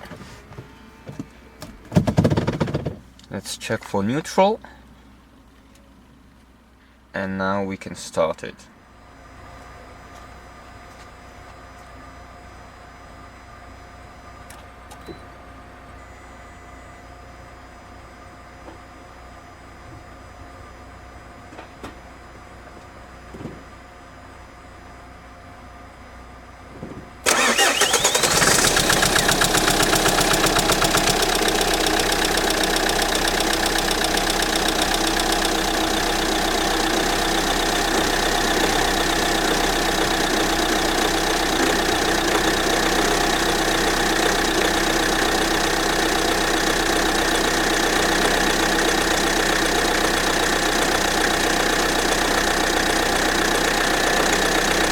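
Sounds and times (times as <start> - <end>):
diesel engine cranking and idling: 19.1 - 54.9.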